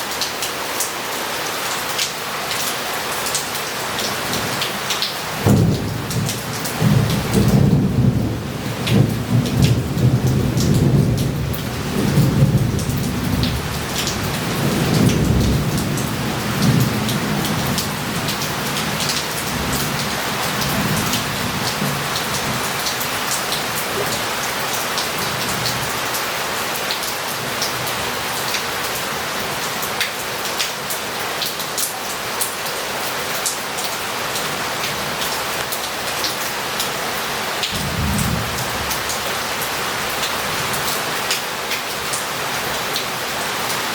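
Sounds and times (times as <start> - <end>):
heavy rain on roof and street: 0.0 - 43.9
thunder rumbling: 37.8 - 39.2.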